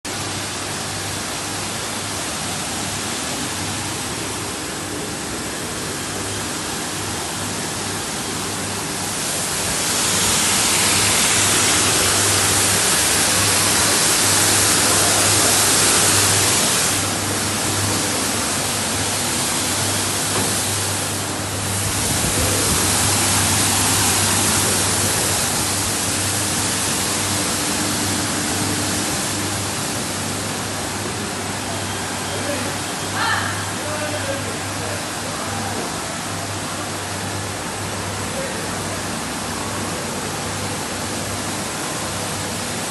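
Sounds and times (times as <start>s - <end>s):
rushing water-like hiss: 0.1s - 34.0s
electric motor hum: 9.0s - 17.2s.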